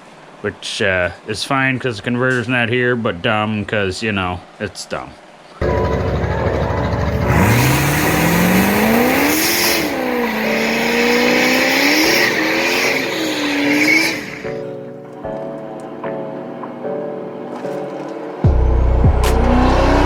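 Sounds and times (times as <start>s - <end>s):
car engine revving: 5.6s - 14.7s, 18.5s - 20.0s.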